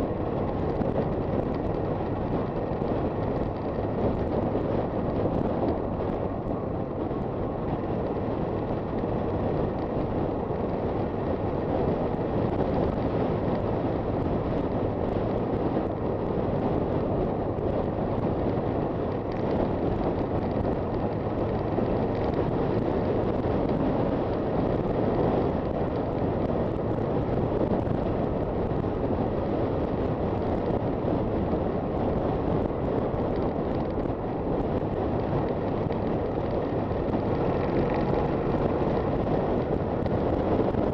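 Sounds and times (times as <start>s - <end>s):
motorcycle engine cruising: 0.0s - 40.9s
wind and road noise: 0.0s - 40.9s.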